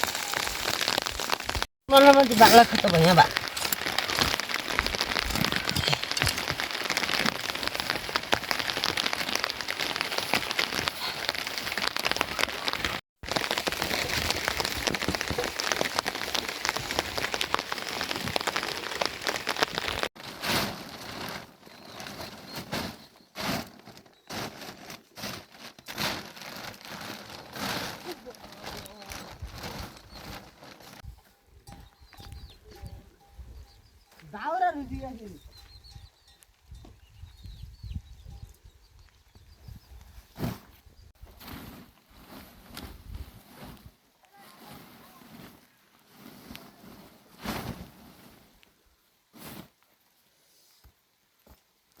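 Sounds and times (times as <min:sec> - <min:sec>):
rain falling: 0:00.0 - 0:20.1.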